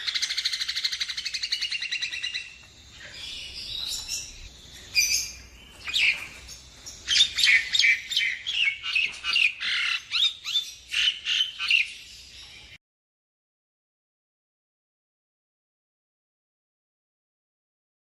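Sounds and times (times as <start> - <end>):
myna whistled calls: 0.0 - 12.8.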